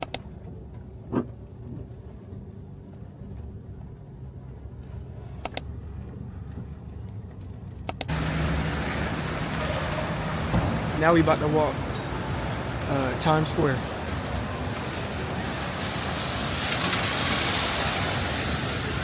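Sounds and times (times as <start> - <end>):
sharp clicks: 0.0 - 0.3, 5.4 - 5.7, 7.8 - 8.1
traffic rumble: 0.0 - 19.0
rain hiss: 8.1 - 19.0.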